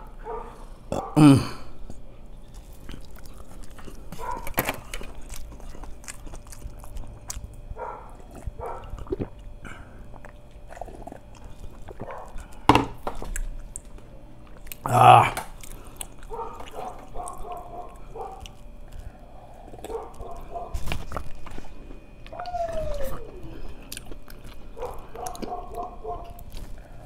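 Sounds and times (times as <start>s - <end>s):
man chewing food: 0.0s - 27.0s
throaty vocal sound: 0.9s - 1.8s, 14.8s - 15.5s.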